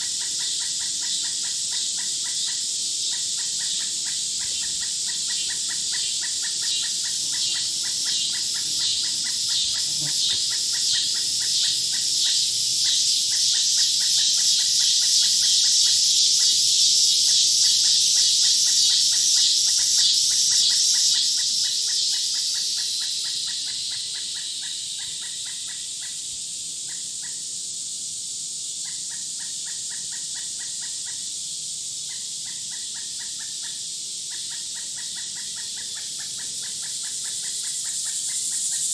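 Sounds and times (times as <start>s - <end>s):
pulsing insect buzz: 0.0s - 17.1s.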